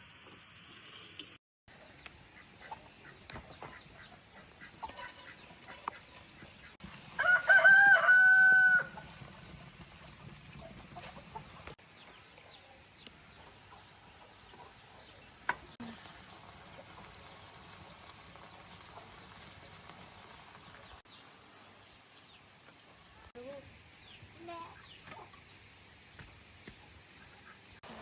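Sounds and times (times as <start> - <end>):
chickens calling: 1.7 - 15.8.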